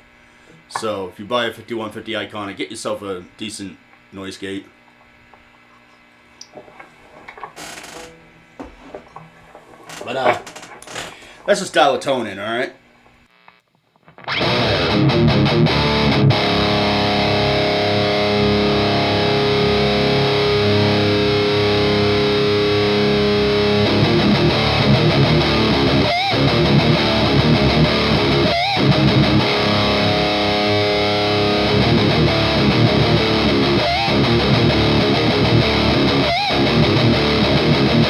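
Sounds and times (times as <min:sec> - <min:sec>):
distorted electric guitar chords: 0:13.2 - 0:38.0.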